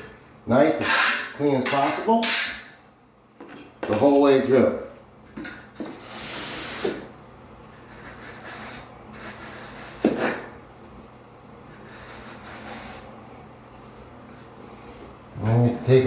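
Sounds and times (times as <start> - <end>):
knife scraping mortar: 0.8 - 2.8.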